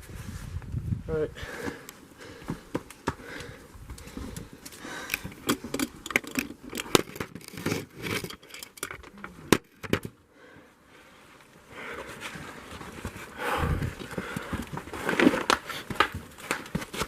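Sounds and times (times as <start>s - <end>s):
footsteps scrambling over rocks: 1.6s - 8.4s, 12.3s - 17.0s.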